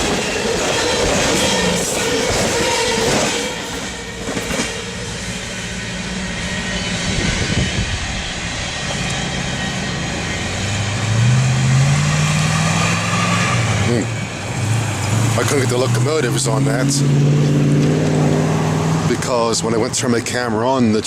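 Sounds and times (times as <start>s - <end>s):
train cars clanking: 0.0s - 6.6s
train cars rumbling on rails: 0.0s - 21.0s
low drone rising in pitch: 3.8s - 20.0s.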